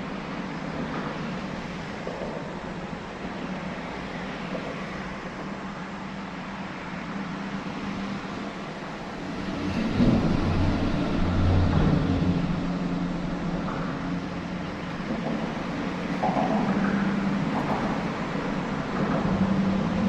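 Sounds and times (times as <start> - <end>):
outdoor noise: 0.0 - 20.0.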